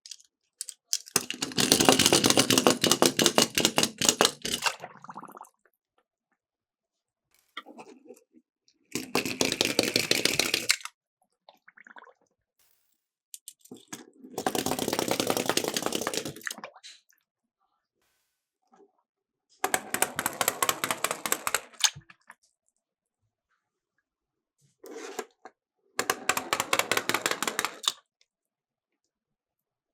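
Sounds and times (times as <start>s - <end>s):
toy cars rattling down plastic track: 0.0s - 4.7s, 9.0s - 10.8s, 14.4s - 16.4s, 19.6s - 21.8s, 26.0s - 28.0s.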